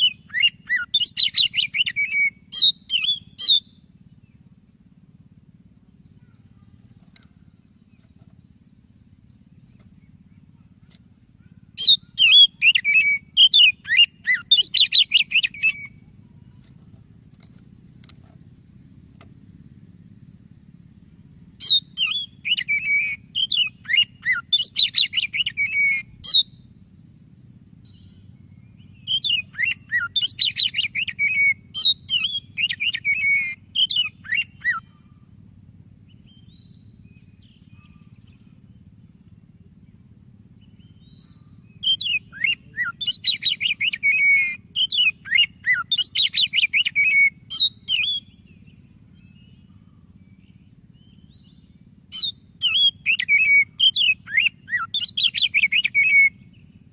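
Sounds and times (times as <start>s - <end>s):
bird singing whistled trills: 0.0s - 4.5s, 11.4s - 16.6s, 20.3s - 35.2s, 36.0s - 40.0s, 40.6s - 56.9s
faint low hum: 0.0s - 56.9s.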